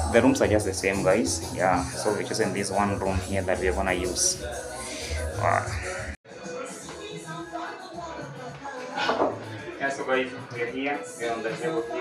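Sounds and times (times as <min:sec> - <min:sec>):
background music over sound system: 0:00.0 - 0:06.2.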